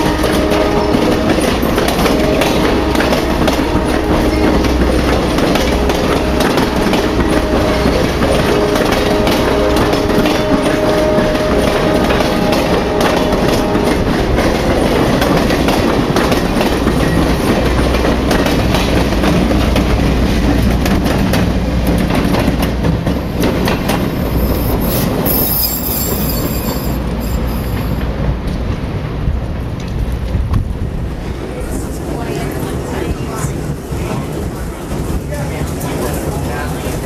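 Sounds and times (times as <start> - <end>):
train wheels clacking over rail joints: 0.0 - 31.4
train low rumble: 0.0 - 37.0
high wheel squeal: 24.0 - 28.0.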